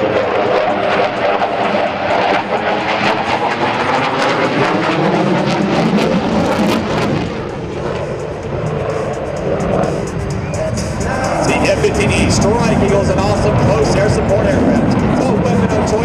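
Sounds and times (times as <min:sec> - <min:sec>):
jet engines fly-by: 0:00.0 - 0:16.0.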